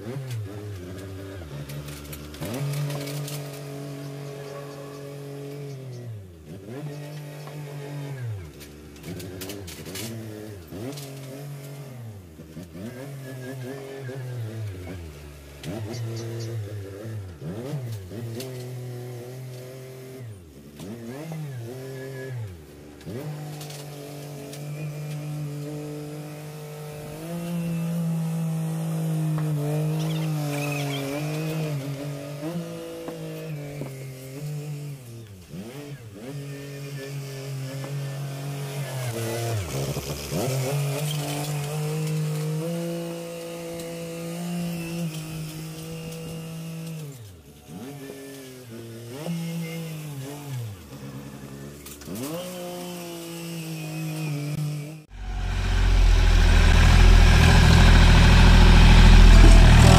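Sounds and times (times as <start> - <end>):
tractor engine running: 55.1 - 59.9.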